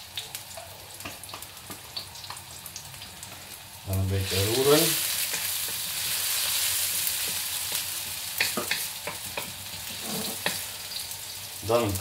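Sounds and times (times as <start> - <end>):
onion sizzling in oil: 0.0 - 12.0
spatula scraping a wok: 8.8 - 10.9.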